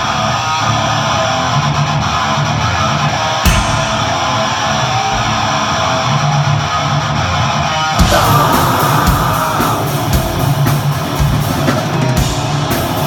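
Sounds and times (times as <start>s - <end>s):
metal band playing live: 0.0s - 13.0s
sharp hit: 3.5s - 6.6s.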